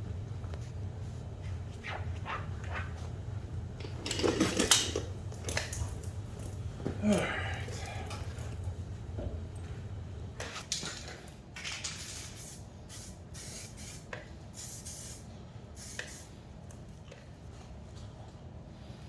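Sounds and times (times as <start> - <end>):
aerosol spray can hissing: 12.0 - 15.2, 15.8 - 16.3.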